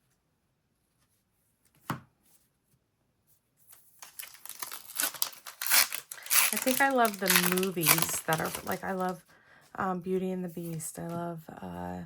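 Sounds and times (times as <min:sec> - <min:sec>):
foil wrapper tearing and crinkling: 0:04.0 - 0:09.2.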